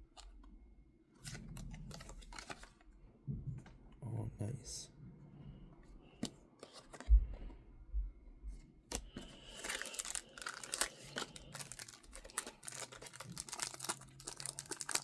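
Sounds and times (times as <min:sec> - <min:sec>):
wrapper tearing and crinkling: 0:09.4 - 0:15.0.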